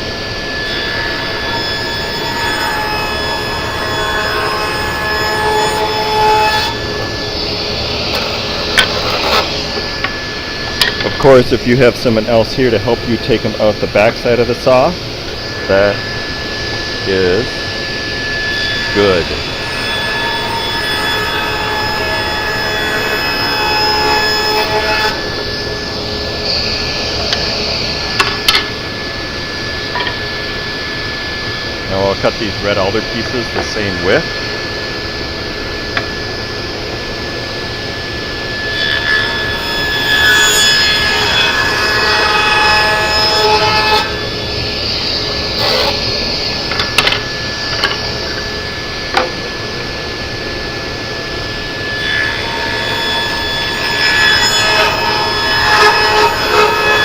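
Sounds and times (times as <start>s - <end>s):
table saw cutting board: 0.0s - 57.0s
saw blade spinning: 0.7s - 10.1s, 43.4s - 48.5s
sharp clicks and knocks: 28.2s - 28.7s, 29.9s - 30.2s, 46.7s - 48.0s, 49.1s - 49.4s.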